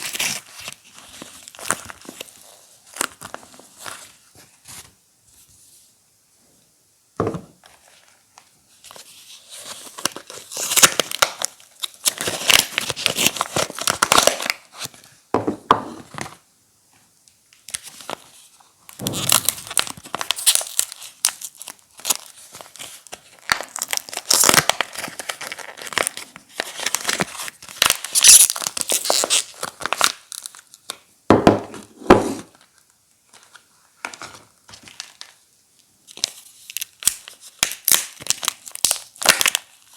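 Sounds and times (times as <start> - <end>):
packaging crinkling and tearing: 0.0 - 4.2, 8.8 - 15.1, 17.6 - 31.0, 32.4 - 35.4, 36.0 - 39.9.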